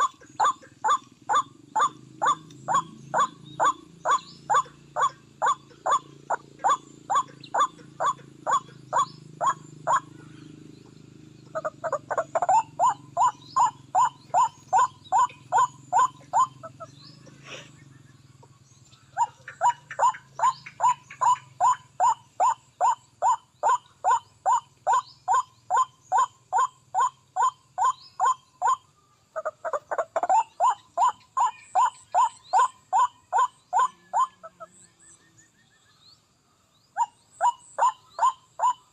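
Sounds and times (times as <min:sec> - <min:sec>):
waterhen calling: 0:00.0 - 0:10.3, 0:11.5 - 0:17.7, 0:19.0 - 0:28.8.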